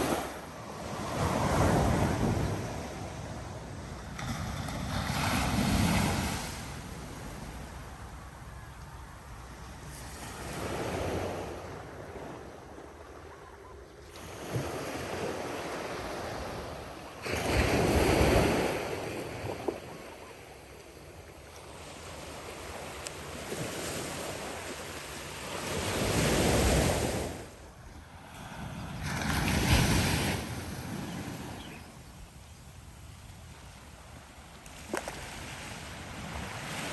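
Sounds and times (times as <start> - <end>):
waves breaking on shore: 0.0 - 3.5, 14.1 - 20.7.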